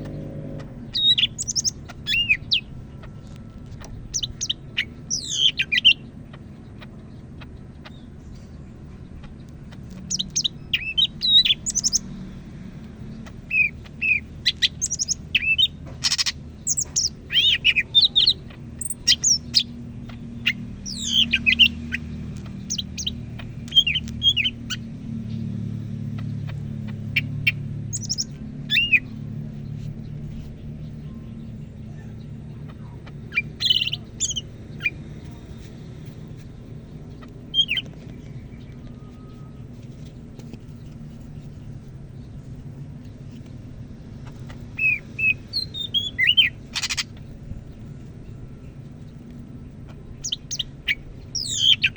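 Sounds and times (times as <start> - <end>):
bird singing whistled notes: 0.8 - 2.7, 4.1 - 6.0, 10.0 - 12.1, 13.5 - 19.8, 20.4 - 22.0, 22.6 - 24.9, 27.1 - 29.2, 33.3 - 35.4, 37.5 - 39.7, 44.7 - 47.1, 50.2 - 51.9.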